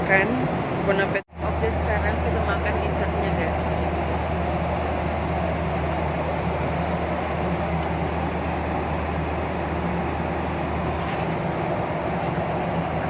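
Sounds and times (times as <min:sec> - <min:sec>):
constant low hum: 0:00.0 - 0:13.0
engine drone: 0:00.0 - 0:13.0.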